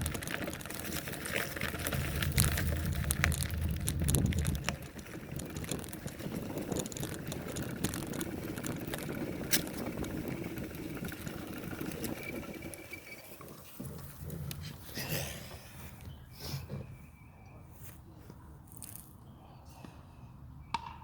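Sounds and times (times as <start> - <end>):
bicycle rattles and clicks: 0.0 - 16.2
bicycle tyres rolling on dirt: 0.0 - 16.3, 18.7 - 19.2.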